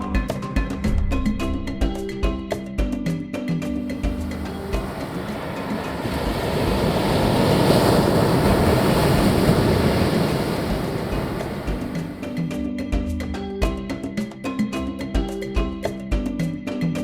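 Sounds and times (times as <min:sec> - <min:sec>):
ocean surf: 0:03.8 - 0:12.6.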